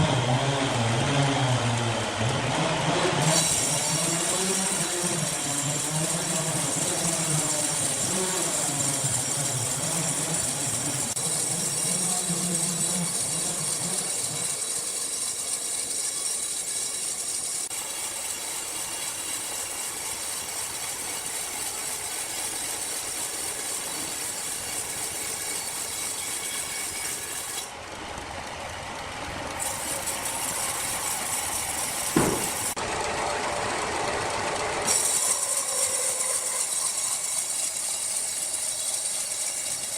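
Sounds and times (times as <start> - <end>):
sawmill machinery hissing: 0.0 - 39.9
sharp knock: 32.1 - 32.8.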